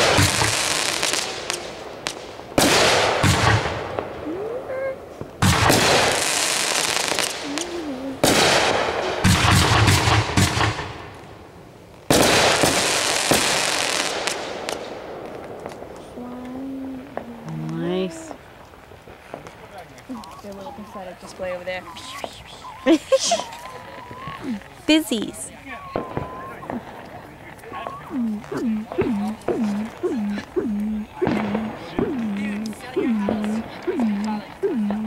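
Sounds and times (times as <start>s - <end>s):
fireworks bangs: 0.0s - 35.0s
fireworks crackling hiss: 0.0s - 35.0s.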